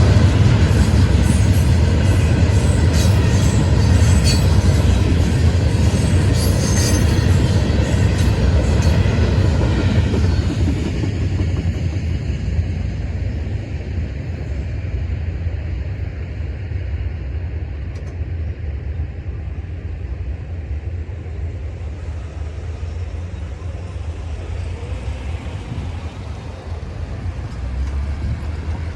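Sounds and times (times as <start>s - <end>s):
freight train cars rumbling: 0.0s - 28.9s.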